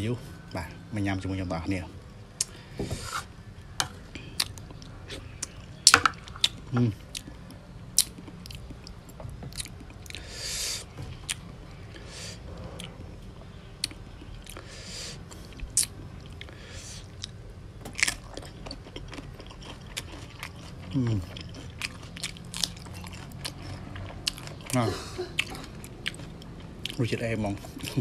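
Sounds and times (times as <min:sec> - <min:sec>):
food crunches and clicks: 0:15.3 - 0:24.8, 0:25.4 - 0:28.0
moist chewing and smacking: 0:15.3 - 0:24.8, 0:25.4 - 0:28.0.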